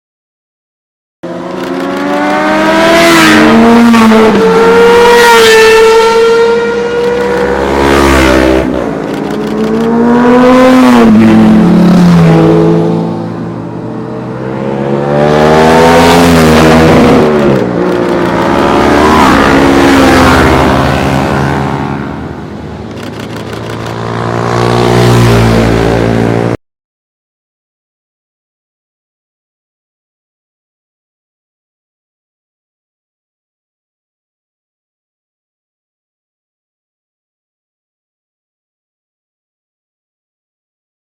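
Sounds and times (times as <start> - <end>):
motorcycles passing by: 1.3 - 26.6.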